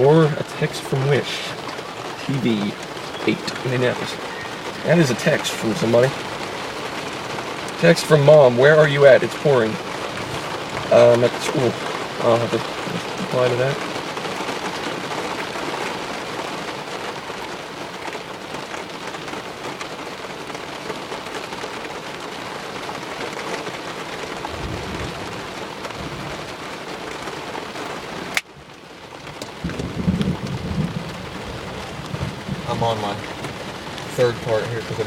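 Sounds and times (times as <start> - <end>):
heavy rain on vehicle roof: 0.0 - 35.0
thunder rumbling: 24.4 - 26.6, 29.5 - 35.0.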